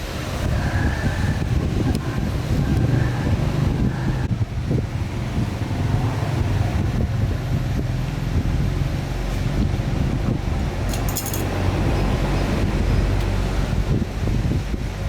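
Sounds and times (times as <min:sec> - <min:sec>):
metallic jingle: 0:10.9 - 0:11.6.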